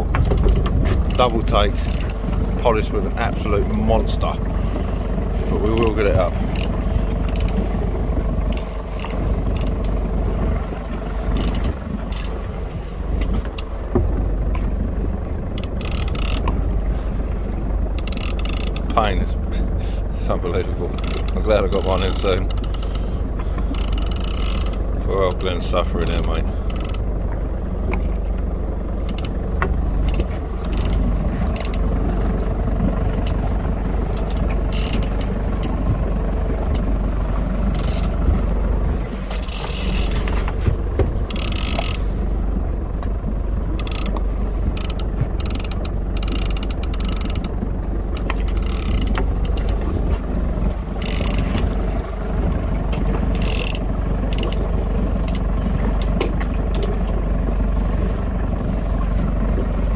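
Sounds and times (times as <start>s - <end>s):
low rumble: 0.0s - 59.9s
fishing reel clicker rasping: 0.2s - 2.2s, 5.7s - 7.6s, 8.5s - 10.0s, 11.3s - 12.4s, 15.6s - 16.6s, 18.0s - 19.0s, 20.9s - 23.1s, 23.7s - 27.0s, 29.0s - 29.4s, 30.0s - 31.9s, 34.1s - 35.8s, 37.7s - 38.2s, 39.3s - 40.4s, 41.3s - 42.2s, 43.8s - 49.8s, 51.0s - 51.6s, 53.3s - 55.4s.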